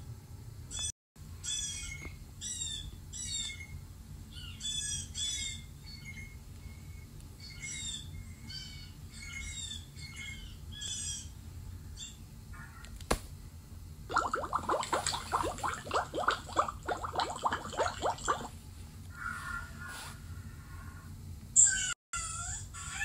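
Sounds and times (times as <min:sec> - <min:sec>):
bird squawking: 0:00.7 - 0:03.7.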